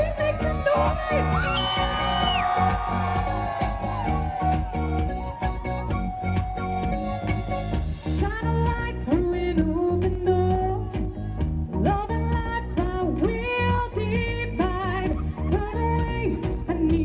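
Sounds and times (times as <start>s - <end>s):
steady drum beat: 0.0s - 8.4s
bass: 0.0s - 17.0s.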